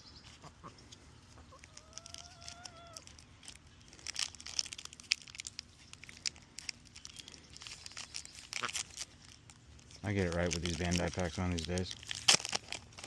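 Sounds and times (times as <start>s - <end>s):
animal call: 1.4s - 3.1s
foil wrappers and cards crinkling: 1.5s - 13.0s.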